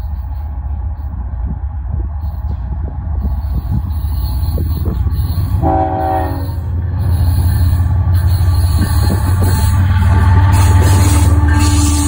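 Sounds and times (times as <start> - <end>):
diesel locomotive engine rumble: 0.0 - 12.0
short horn blast: 5.6 - 6.6.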